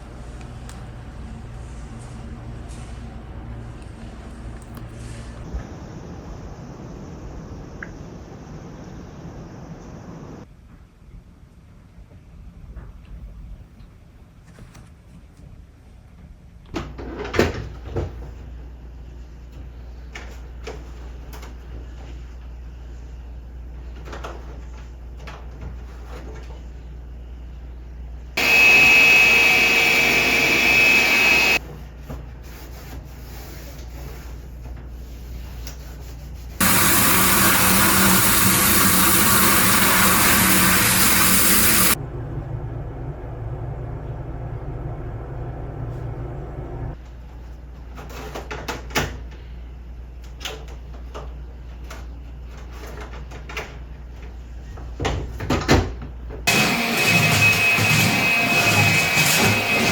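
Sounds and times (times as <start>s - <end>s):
vacuum cleaner running: 28.4s - 31.6s, 36.6s - 42.0s, 56.5s - 59.9s.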